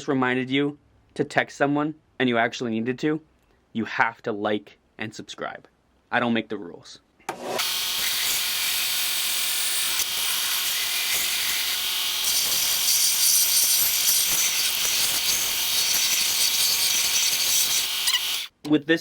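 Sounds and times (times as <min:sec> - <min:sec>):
belt sander grinding wood: 0:07.3 - 0:18.6.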